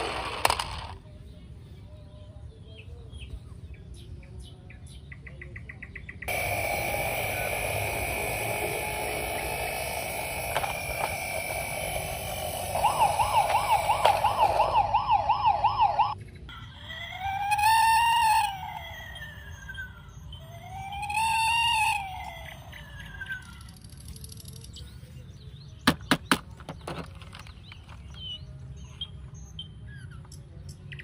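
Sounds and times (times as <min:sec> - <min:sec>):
fast warbling electronic siren: 0:06.3 - 0:16.2, 0:16.9 - 0:23.7
loud electronic hissing: 0:06.3 - 0:16.2, 0:20.8 - 0:22.6.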